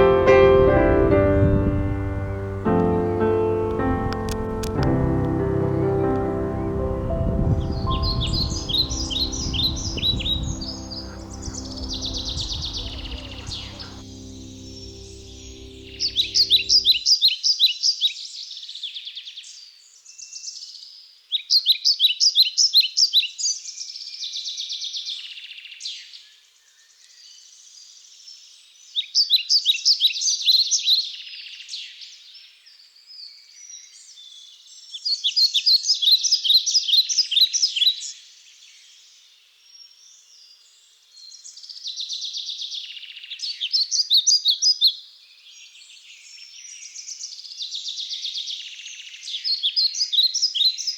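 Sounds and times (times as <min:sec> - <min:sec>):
songbird singing high notes: 0:02.0 - 0:17.0
soft bird chirping: 0:02.2 - 0:17.0.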